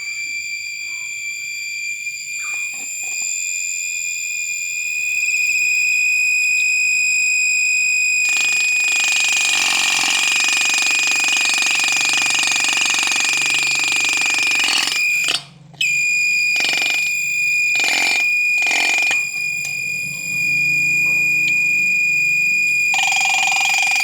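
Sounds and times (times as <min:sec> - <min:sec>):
shrill steady tone: 0:00.0 - 0:24.0
rasping buzz: 0:08.0 - 0:24.0.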